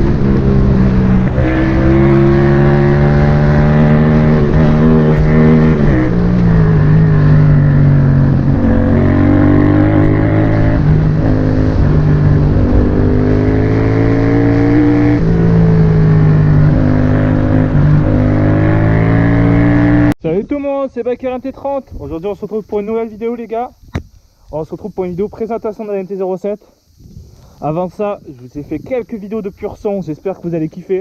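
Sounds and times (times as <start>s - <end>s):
motorcycle engine accelerating hard: 0.0s - 20.2s.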